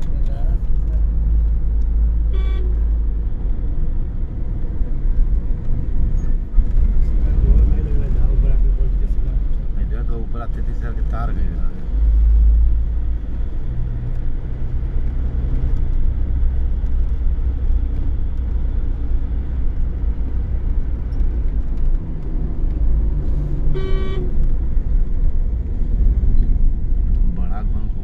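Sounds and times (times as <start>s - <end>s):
car engine rumble: 0.0s - 28.0s
road noise: 0.0s - 28.0s
vehicle horn honk: 2.3s - 2.8s, 23.7s - 24.4s.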